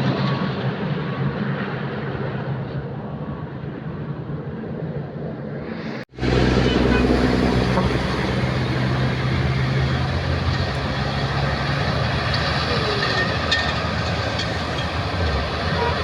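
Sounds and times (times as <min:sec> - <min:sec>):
truck engine running: 0:06.2 - 0:16.0.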